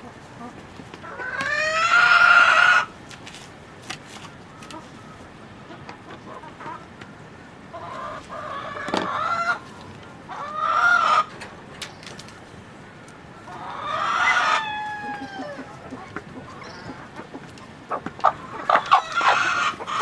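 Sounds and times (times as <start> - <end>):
rooster crowing: 13.9 - 15.7.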